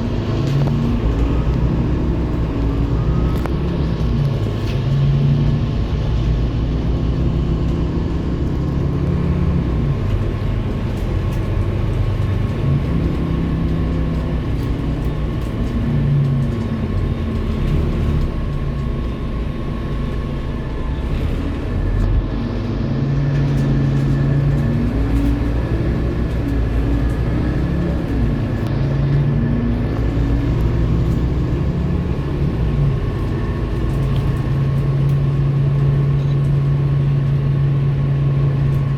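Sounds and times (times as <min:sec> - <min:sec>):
bus diesel engine accelerating: 0:00.0 - 0:38.9.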